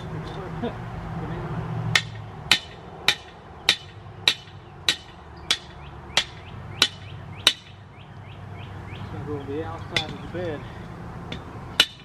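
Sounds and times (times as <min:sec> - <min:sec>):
hammer striking stake: 0:01.9 - 0:07.8, 0:09.9 - 0:10.3, 0:11.3 - 0:12.0.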